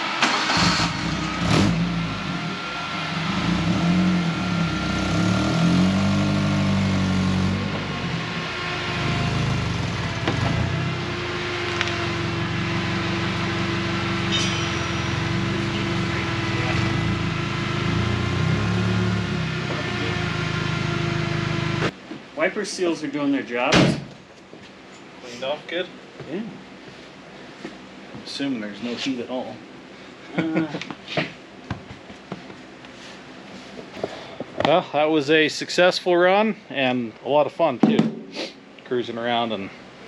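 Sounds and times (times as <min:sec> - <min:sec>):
car engine revving: 0:00.0 - 0:21.9.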